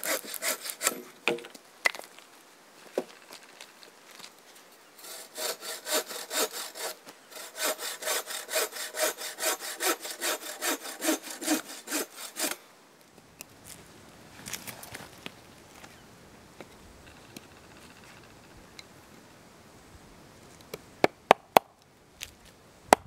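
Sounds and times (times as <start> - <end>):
hand saw cutting log: 0.0 - 1.1, 5.0 - 12.6.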